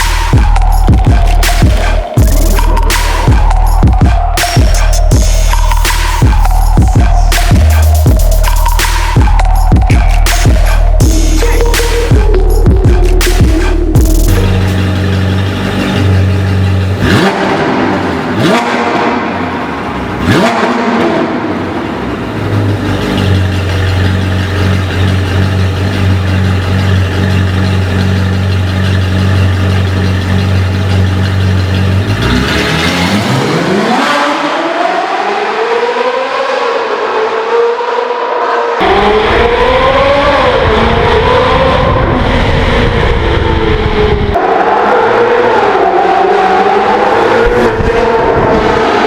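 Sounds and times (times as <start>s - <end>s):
music with steady bass: 0.0s - 17.5s
sports car engine revving: 0.0s - 49.0s.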